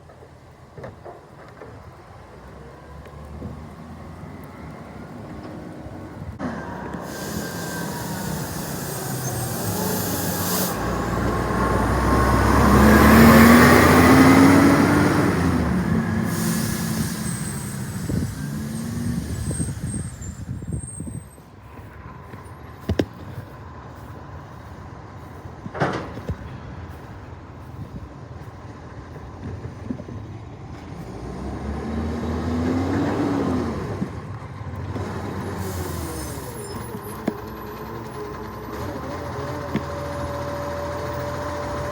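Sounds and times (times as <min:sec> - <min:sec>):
diesel truck engine revving: 0:02.6 - 0:21.4, 0:22.2 - 0:41.9
air brakes hissing: 0:06.4 - 0:22.9, 0:35.0 - 0:41.9.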